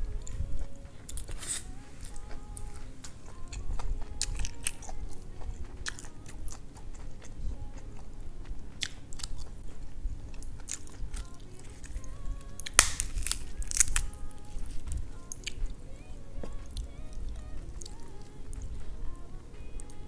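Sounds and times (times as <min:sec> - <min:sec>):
person chewing food: 0:00.0 - 0:20.0
lettuce leaf tearing: 0:01.1 - 0:02.2, 0:12.6 - 0:14.9.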